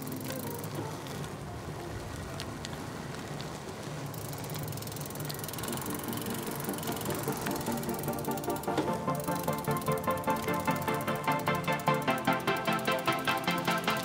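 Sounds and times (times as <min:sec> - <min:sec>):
bicycle tyre noise: 0:00.0 - 0:14.0
bike clicks: 0:00.0 - 0:14.0.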